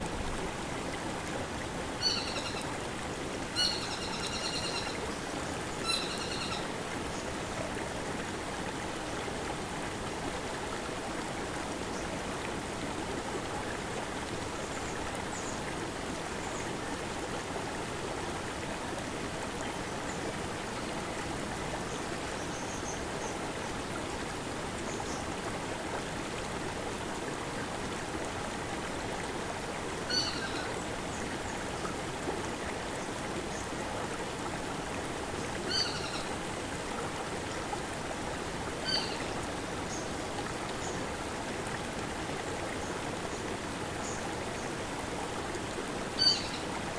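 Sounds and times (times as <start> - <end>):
stream babbling over boulders: 0.0 - 46.9
faint high bird calls: 2.0 - 2.7, 3.6 - 5.0, 5.8 - 6.7, 30.1 - 30.7, 35.7 - 36.3, 38.8 - 39.3, 46.2 - 46.7.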